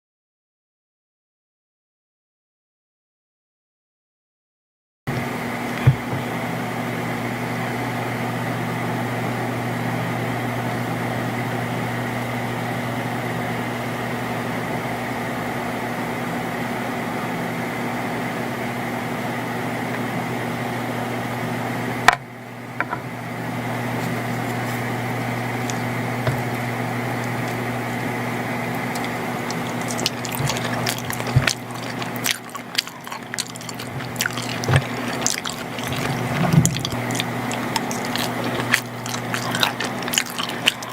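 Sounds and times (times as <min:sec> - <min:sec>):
machine hum: 0:20.7 - 0:40.9.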